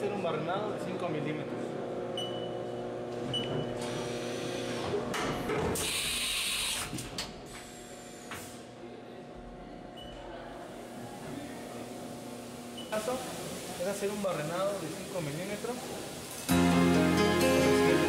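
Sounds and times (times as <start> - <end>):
hiss: 12.9 - 16.5.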